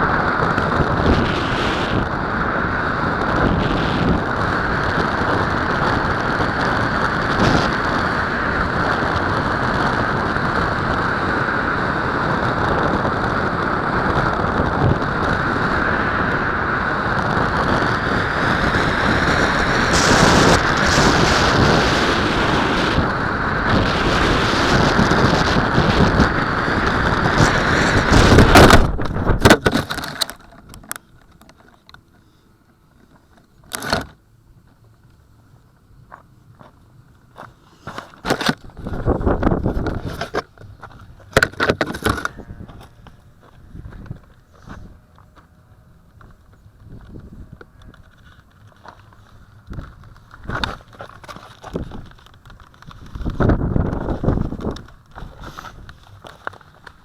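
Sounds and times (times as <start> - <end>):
wind rushing over microphone: 0.0 - 31.0, 37.9 - 45.1, 46.2 - 57.0.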